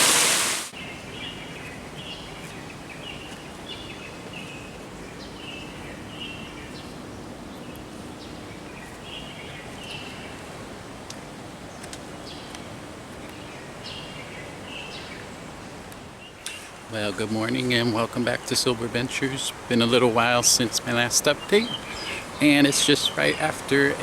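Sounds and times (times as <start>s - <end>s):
running water rushing: 0.0s - 0.7s.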